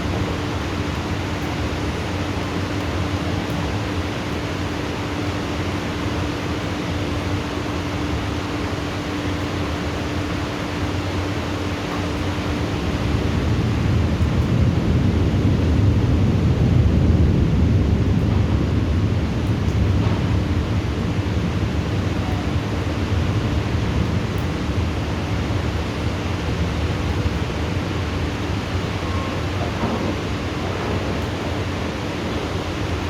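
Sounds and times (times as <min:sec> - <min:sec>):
heavy rain hiss: 0:00.0 - 0:33.0
thunder rumbling: 0:12.5 - 0:33.0.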